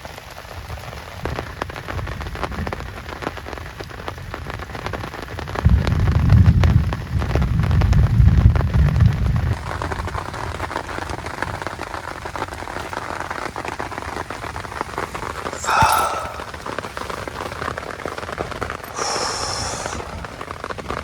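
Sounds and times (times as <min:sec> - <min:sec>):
heavy rain hissing: 0:14.3 - 0:21.0.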